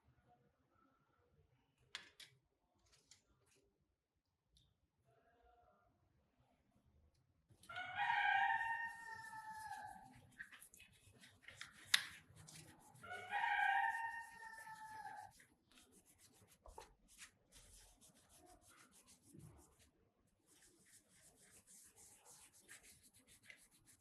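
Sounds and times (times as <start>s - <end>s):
rooster crowing: 7.7s - 10.1s, 13.0s - 15.3s.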